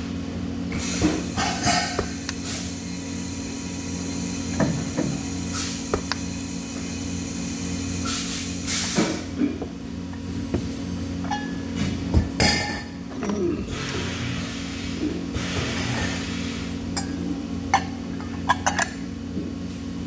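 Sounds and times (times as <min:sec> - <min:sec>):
machine hum: 0:00.0 - 0:15.5.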